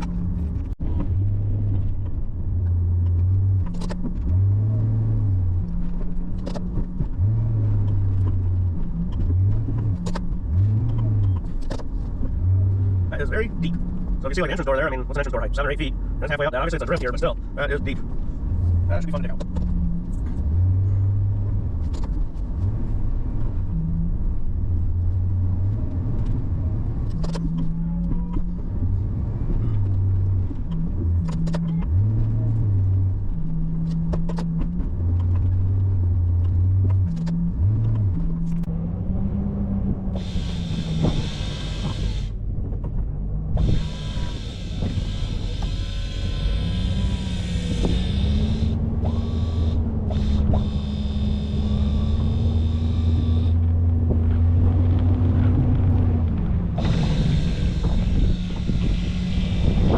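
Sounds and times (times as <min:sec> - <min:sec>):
truck engine running: 0:28.4 - 0:59.9.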